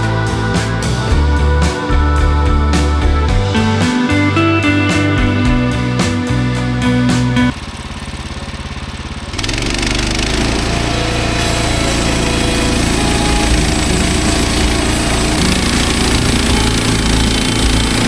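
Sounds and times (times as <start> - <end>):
sawmill gas engine running: 7.2 - 18.0.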